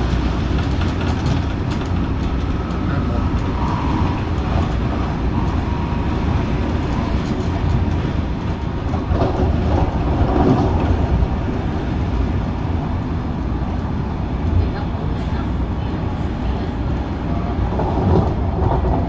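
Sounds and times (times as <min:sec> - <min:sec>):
electric train rumbling: 0:00.0 - 0:19.0.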